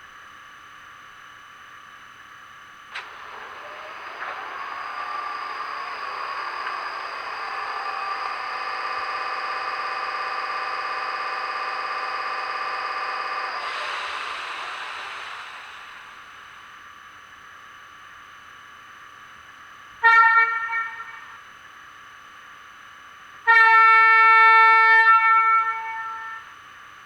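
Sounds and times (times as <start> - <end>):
steady whining tones: 2.9 - 17.2
hiss: 3.0 - 16.8.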